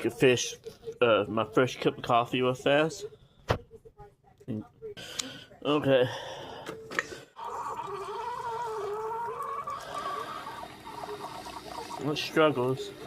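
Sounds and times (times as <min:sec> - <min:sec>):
coffee maker pump humming: 0:07.4 - 0:13.0
water gurgling: 0:07.4 - 0:13.0.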